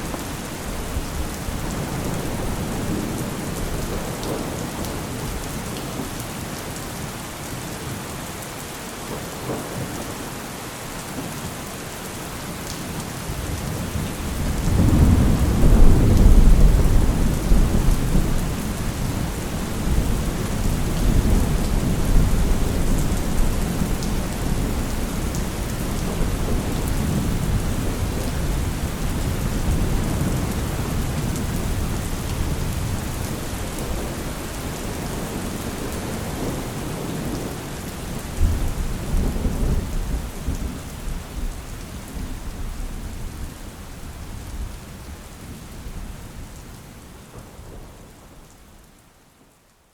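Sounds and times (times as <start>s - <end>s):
thunder rumbling: 0.0s - 5.5s, 13.3s - 41.6s
steady rain: 0.0s - 49.9s.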